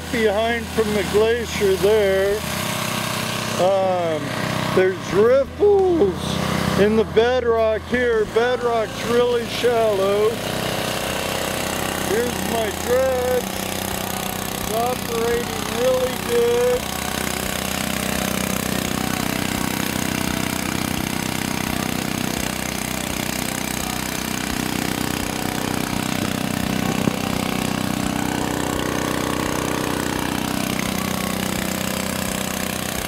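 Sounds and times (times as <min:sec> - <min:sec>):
dredge engine running: 0:00.0 - 0:33.0.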